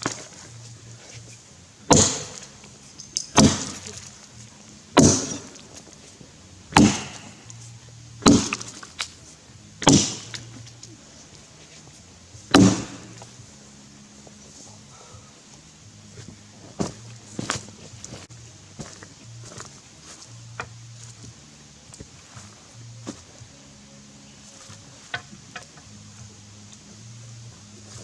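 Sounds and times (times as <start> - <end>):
axe chopping log: 1.9 - 6.0, 6.7 - 9.2, 9.8 - 10.8, 12.5 - 13.3, 16.7 - 21.1.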